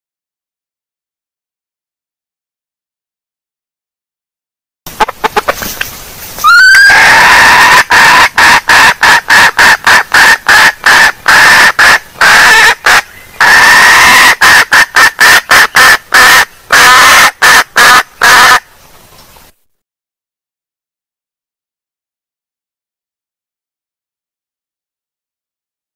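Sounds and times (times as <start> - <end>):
hen clucking: 4.9 - 18.7.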